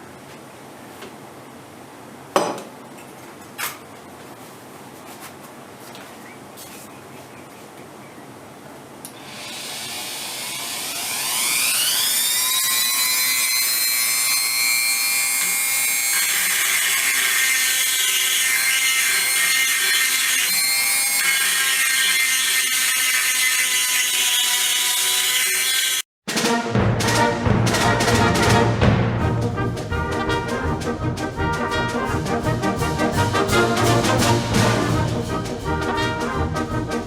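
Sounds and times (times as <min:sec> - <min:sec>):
rotary tool grinding steel: 0:09.2 - 0:26.1.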